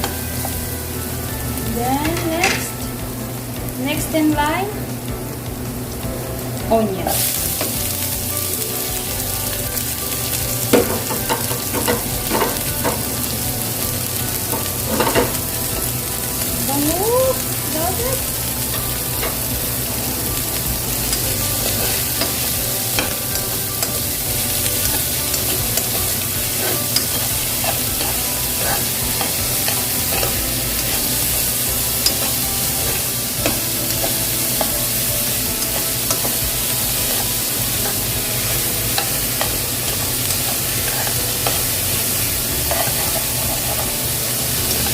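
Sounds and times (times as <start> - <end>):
onion sizzling in hot oil: 0.0 - 44.9
spatula clicking and scraping pan: 10.3 - 13.3, 18.7 - 44.9.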